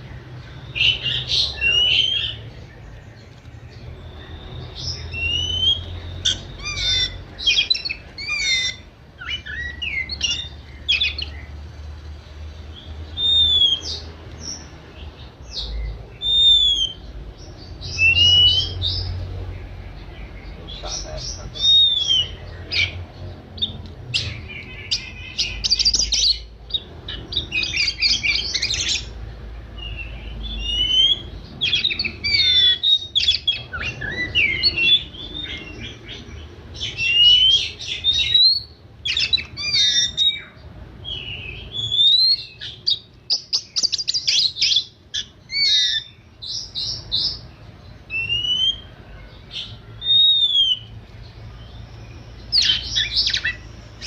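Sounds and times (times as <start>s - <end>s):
magpie-robin singing: 0.0s - 11.6s, 12.6s - 54.0s.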